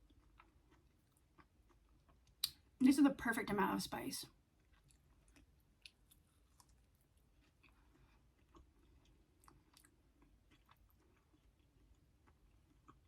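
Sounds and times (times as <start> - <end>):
faint chewing: 0.0 - 2.8, 4.3 - 13.0
low room hum: 0.0 - 13.0.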